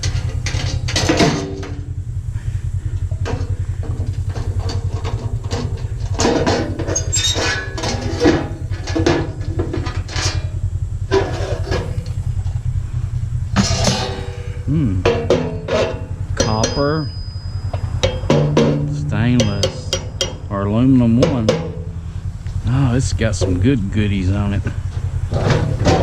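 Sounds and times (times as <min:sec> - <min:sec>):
metal parts clattering: 0:00.0 - 0:02.0, 0:03.0 - 0:12.2, 0:13.6 - 0:20.6, 0:24.7 - 0:26.0
low rumbling drone: 0:00.0 - 0:26.0.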